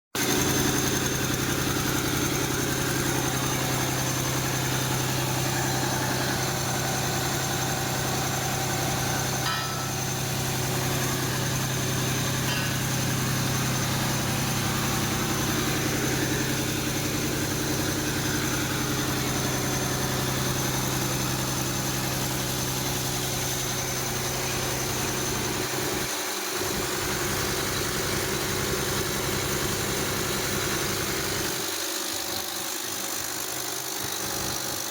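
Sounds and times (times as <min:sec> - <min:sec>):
diesel engine idling: 0:00.2 - 0:26.0.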